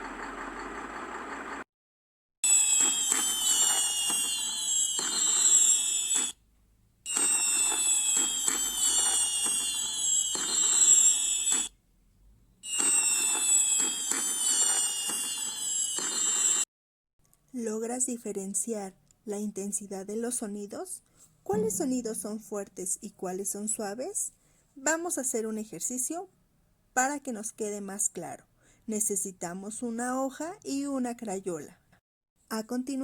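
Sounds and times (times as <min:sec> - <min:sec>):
fireworks whistling: 0:02.5 - 0:06.4, 0:07.1 - 0:11.7, 0:12.6 - 0:16.6.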